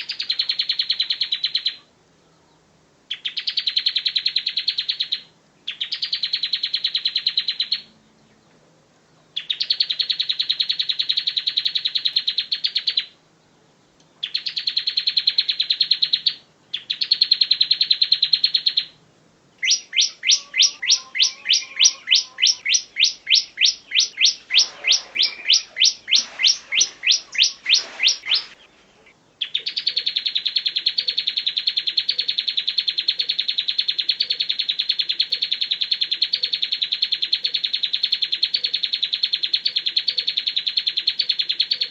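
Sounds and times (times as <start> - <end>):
bird singing trilled phrases: 0.0 - 8.6, 9.4 - 13.2, 13.8 - 19.0, 19.6 - 41.9
bird sharp repeated notes: 19.6 - 38.8.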